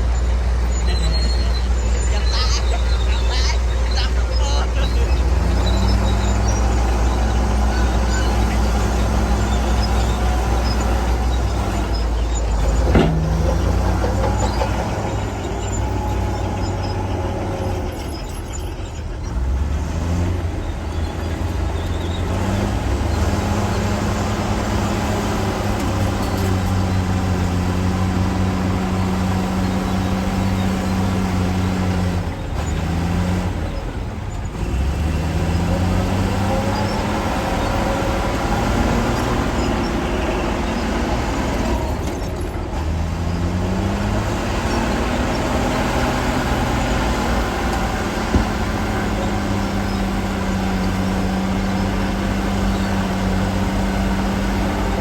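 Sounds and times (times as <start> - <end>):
diesel construction machinery running: 0.0 - 55.0.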